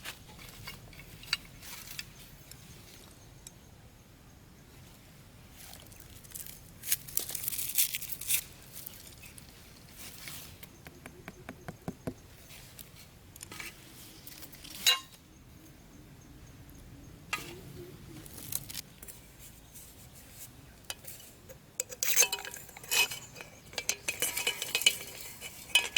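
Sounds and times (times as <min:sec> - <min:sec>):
materials rustling and crinkling: 0:05.6 - 0:10.8, 0:17.4 - 0:21.6.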